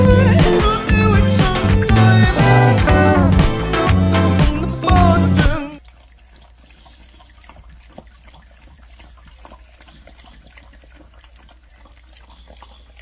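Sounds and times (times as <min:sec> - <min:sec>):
dog lapping from metal bowl: 0:05.4 - 0:13.0.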